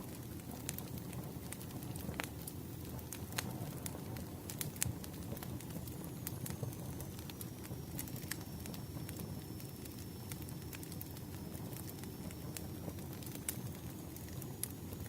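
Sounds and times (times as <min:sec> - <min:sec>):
burning wood crackling and popping: 0:00.0 - 0:15.0
flames rumbling: 0:00.0 - 0:15.0
faint high whine: 0:05.7 - 0:15.0.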